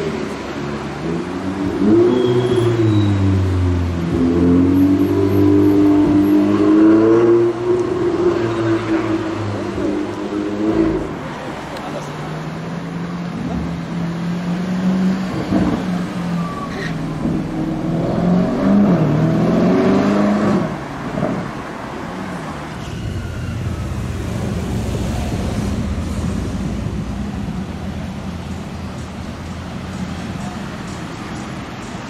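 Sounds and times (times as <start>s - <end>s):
car engine accelerating: 0.0s - 22.5s, 23.4s - 30.3s
car engine rumble driving past: 13.1s - 22.1s, 22.8s - 30.4s.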